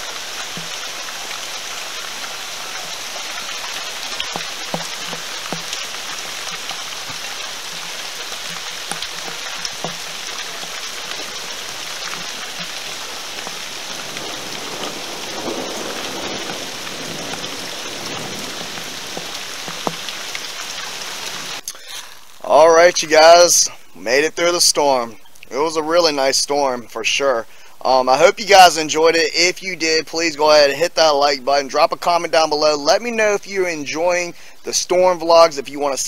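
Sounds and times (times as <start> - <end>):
raindrop ticks: 0.0 - 23.0
heavy rain falling: 0.0 - 23.6.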